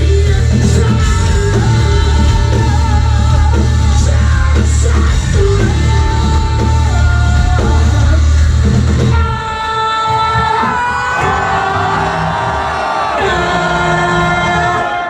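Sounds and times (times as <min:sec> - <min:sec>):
person singing: 0:00.0 - 0:08.4, 0:09.1 - 0:15.0
heavy bass and drums: 0:00.0 - 0:09.7
distorted guitars: 0:00.0 - 0:15.0.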